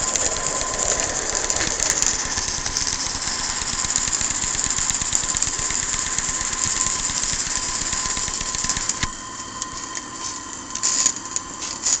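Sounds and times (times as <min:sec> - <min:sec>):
steam locomotive chuffing: 0:00.0 - 0:09.1
steam hiss: 0:00.0 - 0:12.0.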